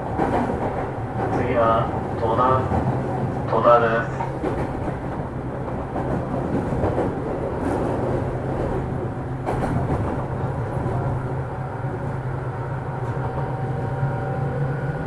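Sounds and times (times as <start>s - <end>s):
rail-joint clicks: 0.2s - 10.4s.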